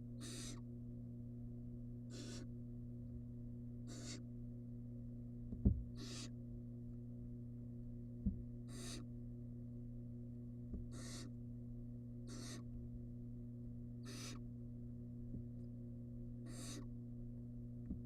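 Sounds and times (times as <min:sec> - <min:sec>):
electrical hum: 0:00.0 - 0:18.0
owl chick hissing: 0:00.2 - 0:00.7, 0:02.1 - 0:02.5, 0:03.8 - 0:04.3, 0:06.0 - 0:06.4, 0:08.7 - 0:09.1, 0:10.9 - 0:11.4, 0:12.2 - 0:12.7, 0:14.0 - 0:14.4, 0:16.4 - 0:16.9
low thumps against box: 0:05.5 - 0:05.9.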